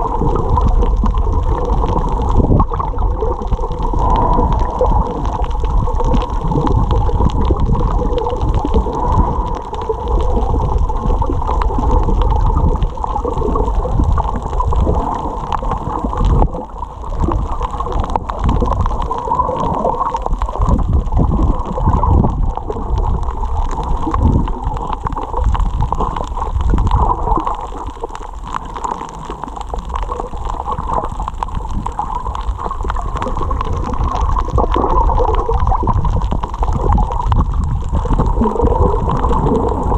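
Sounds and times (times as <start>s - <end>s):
muffled water sloshing and gurgling: 0.0s - 39.9s.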